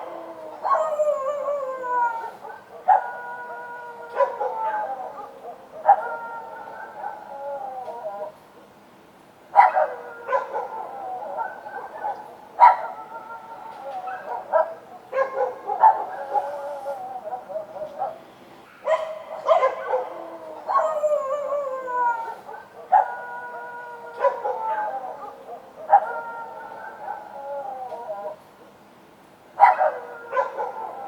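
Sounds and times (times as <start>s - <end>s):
dogs howling: 0.0s - 8.4s, 9.6s - 18.2s, 18.8s - 28.5s, 29.6s - 31.0s
dogs barking: 2.4s - 3.5s, 4.1s - 7.3s, 9.6s - 21.6s, 22.2s - 28.0s, 29.6s - 31.0s.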